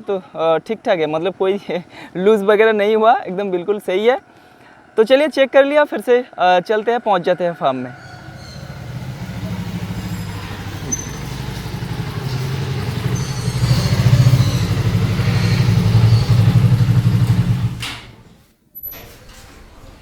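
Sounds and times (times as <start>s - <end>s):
motorcycle engine running: 8.0s - 18.4s.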